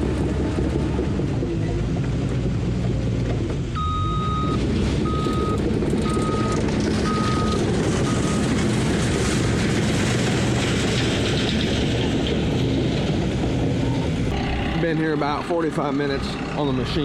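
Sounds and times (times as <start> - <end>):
heavy machine engine running: 0.0 - 17.0
reversing alarm beeping: 3.8 - 8.6, 14.3 - 17.0.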